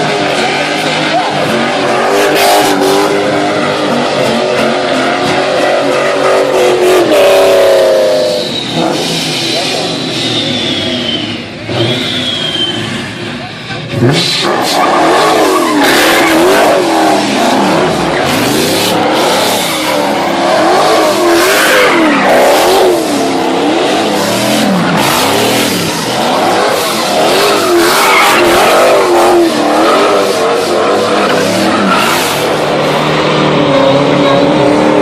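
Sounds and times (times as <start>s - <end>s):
car engine revving: 0.0s - 35.0s
tyres squealing: 14.2s - 34.2s.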